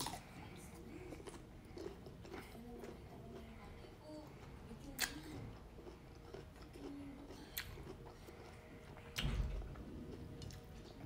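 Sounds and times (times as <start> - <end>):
chewing crisp mango: 0.0 - 11.0.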